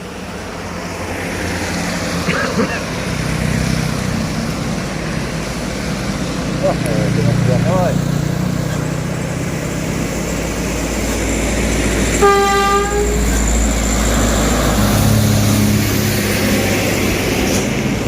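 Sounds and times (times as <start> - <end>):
diesel trucks labouring uphill: 0.0 - 18.0
engine drone: 0.0 - 18.0
vehicle horn: 12.2 - 13.4.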